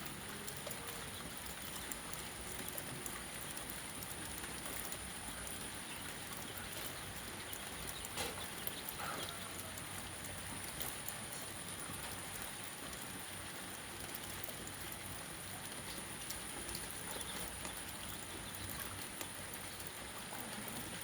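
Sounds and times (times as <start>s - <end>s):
raindrop taps: 0.0s - 21.0s
steady rain hiss: 0.0s - 21.0s.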